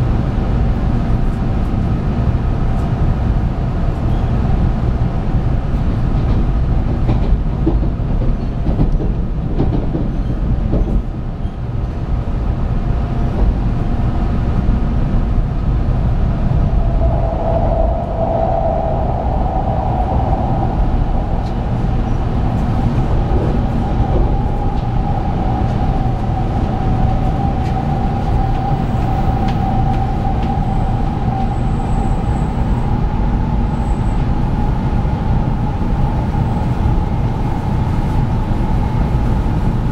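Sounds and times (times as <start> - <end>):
train wheels rumbling on track: 0.0 - 39.9
steady whine: 16.0 - 33.2.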